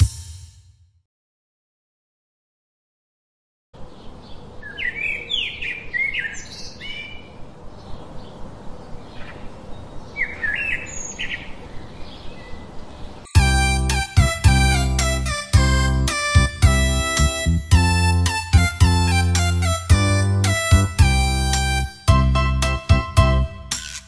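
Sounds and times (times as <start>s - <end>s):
birds chirping: 3.8s - 17.4s
outdoor background hiss: 3.8s - 22.8s
bright children's song music: 13.3s - 24.0s.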